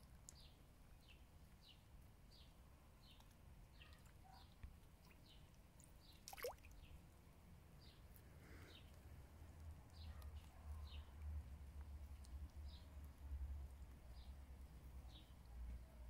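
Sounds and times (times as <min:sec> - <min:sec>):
small bird chirping: 0:02.4 - 0:07.0.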